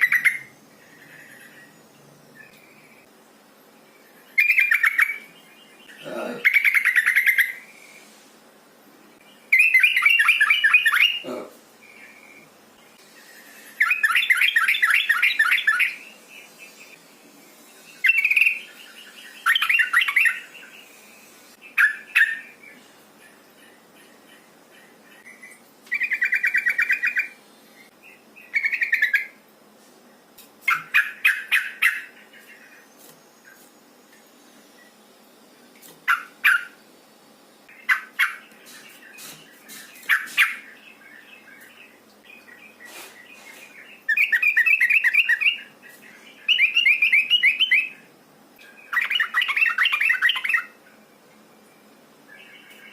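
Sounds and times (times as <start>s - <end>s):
bird chattering calls: 30.7s - 32.2s, 36.0s - 36.8s, 37.7s - 40.7s.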